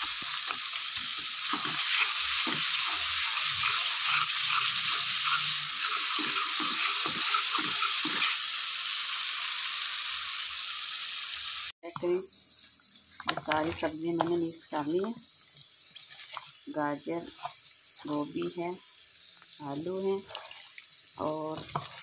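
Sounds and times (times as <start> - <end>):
masala sizzling in oil: 0.0 - 22.0
metal ladle scraping pot: 1.5 - 8.4.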